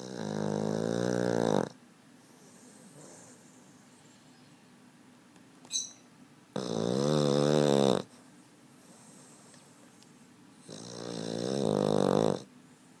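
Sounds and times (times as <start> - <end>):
dog snoring: 0.0 - 4.2, 6.5 - 8.2, 10.6 - 12.5.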